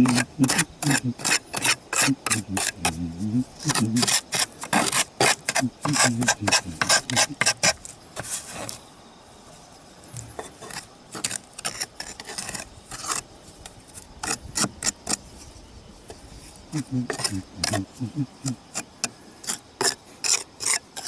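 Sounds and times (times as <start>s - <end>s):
hand scraping roof tiles: 0.0s - 8.8s, 10.2s - 21.0s.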